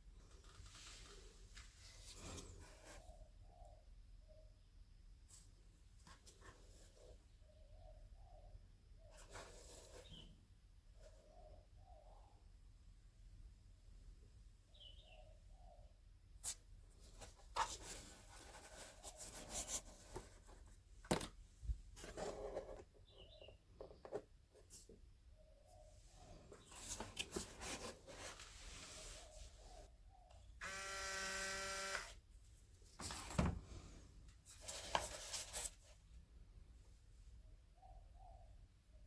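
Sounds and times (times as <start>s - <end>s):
small electric motor buzzing: 30.6s - 32.2s.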